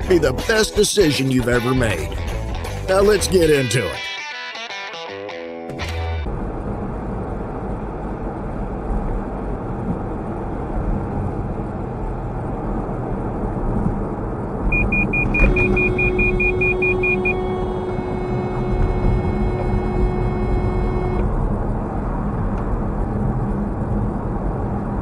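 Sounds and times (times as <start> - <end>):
car road and engine noise: 0.0 - 3.5, 5.7 - 25.0
steady hum: 14.7 - 21.5
rapid high electronic beeps: 14.8 - 21.2.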